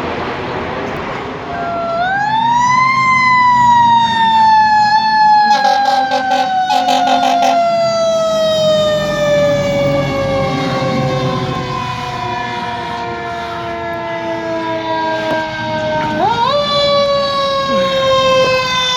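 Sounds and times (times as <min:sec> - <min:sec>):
truck engine rumble: 0:00.0 - 0:18.9
air horn blasts: 0:05.4 - 0:08.0.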